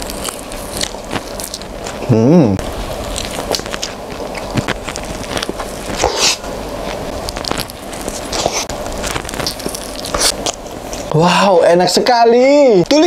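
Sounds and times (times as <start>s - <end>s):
wet chewing and lip smacks: 3.0s - 11.1s.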